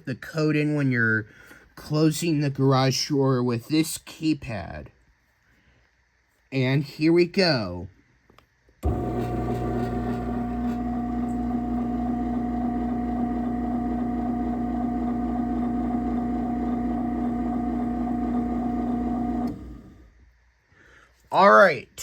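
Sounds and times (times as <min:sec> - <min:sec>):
garage door opener motor hum: 0:08.8 - 0:20.1.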